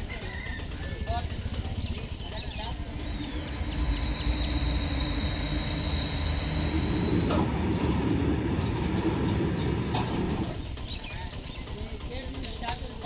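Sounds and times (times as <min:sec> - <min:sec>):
train wheels rumbling on rails: 0:00.0 - 0:13.0
high squeal: 0:03.2 - 0:07.8.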